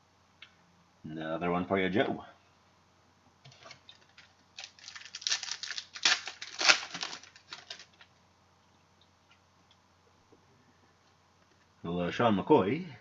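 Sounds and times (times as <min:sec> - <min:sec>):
card pack wrapper tearing and crinkling: 0:03.6 - 0:08.0.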